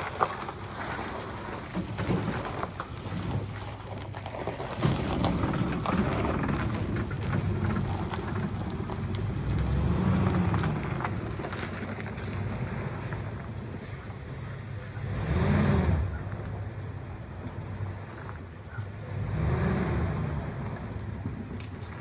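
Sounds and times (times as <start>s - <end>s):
machine engine rumbling: 0.0s - 22.0s
small crackles and ticks: 2.5s - 13.3s, 20.8s - 22.0s.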